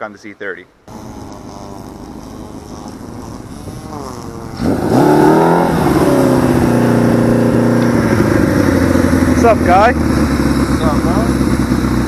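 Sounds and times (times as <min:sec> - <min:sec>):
motorcycle engine revving: 0:00.9 - 0:12.0.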